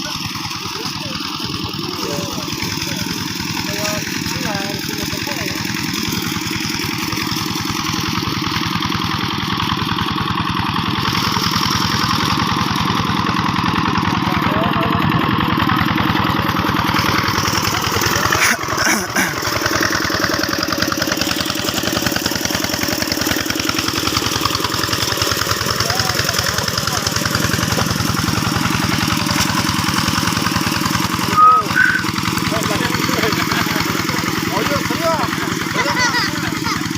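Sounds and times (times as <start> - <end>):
diesel engine pulsing: 0.0 - 36.9.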